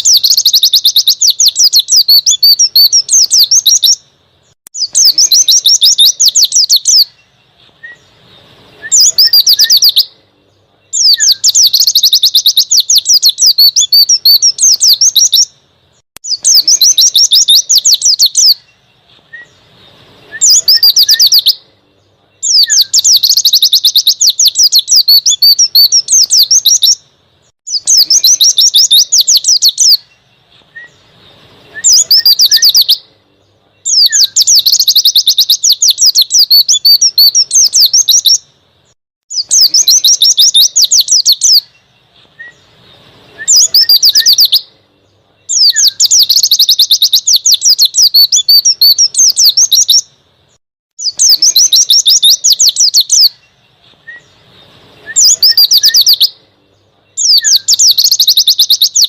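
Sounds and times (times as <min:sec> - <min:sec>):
bird singing high-pitched trills: 0:00.0 - 0:59.0.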